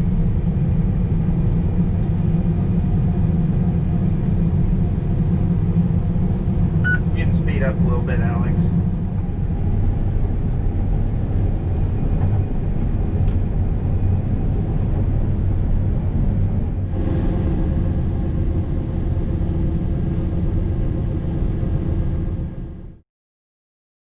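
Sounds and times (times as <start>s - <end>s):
combine harvester engine drone: 0.0s - 23.0s.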